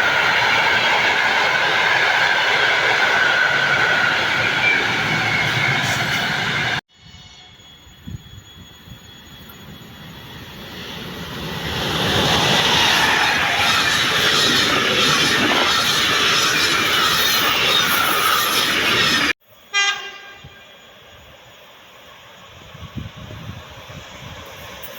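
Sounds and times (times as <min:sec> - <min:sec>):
train passing at speed: 0:00.0 - 0:24.9
train horn blast: 0:19.7 - 0:20.7.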